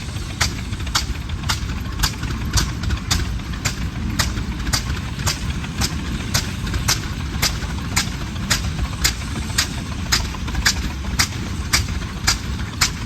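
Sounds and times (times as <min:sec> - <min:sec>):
tractor engine exhaust cracks: 0:00.1 - 0:13.0.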